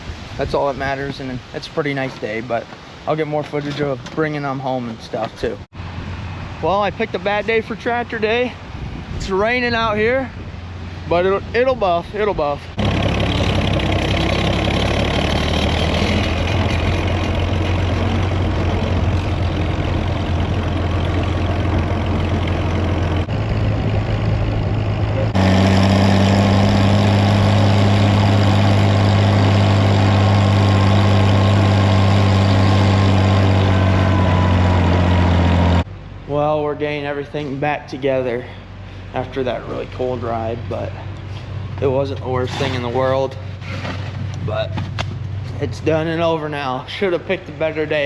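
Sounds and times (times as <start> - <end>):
tractor engine low hum: 5.7 - 37.5.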